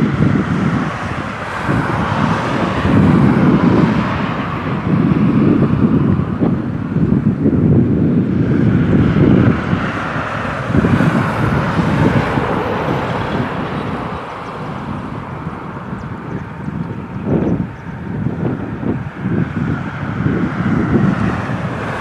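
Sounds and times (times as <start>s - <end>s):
jet engines roaring at takeoff: 0.0s - 22.0s
wind buffeting microphone: 0.0s - 22.0s.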